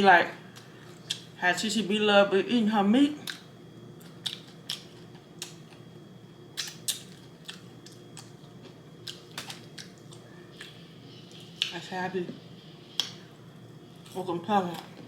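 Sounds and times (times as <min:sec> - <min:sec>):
faint steady hum: 0:00.0 - 0:15.0
chewing crunches: 0:03.2 - 0:05.9, 0:06.6 - 0:11.7.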